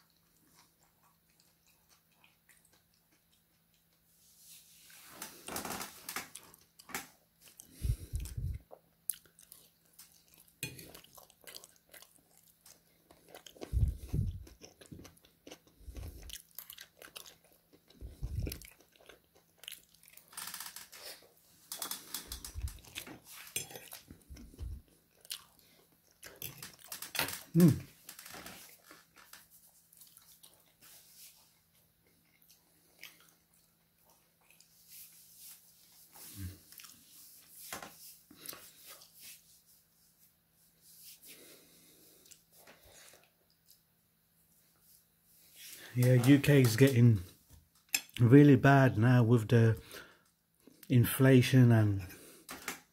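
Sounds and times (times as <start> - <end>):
person chewing food: 0.0 - 4.6, 6.0 - 39.6, 41.0 - 44.0.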